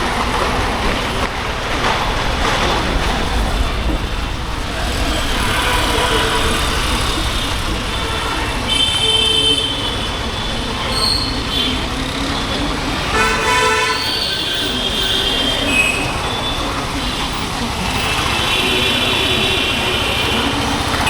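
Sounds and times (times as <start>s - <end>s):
motorcycle engine running: 0.0s - 10.7s
vehicle horn: 4.9s - 12.2s, 13.0s - 16.6s, 17.9s - 21.0s.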